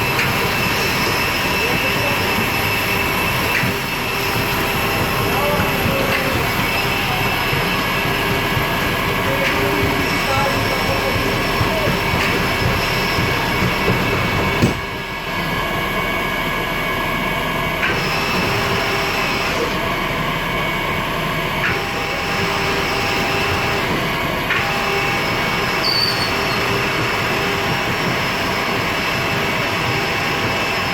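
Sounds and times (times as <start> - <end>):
airport ramp machinery din: 0.0 - 30.9
sharp knock: 14.6 - 14.9.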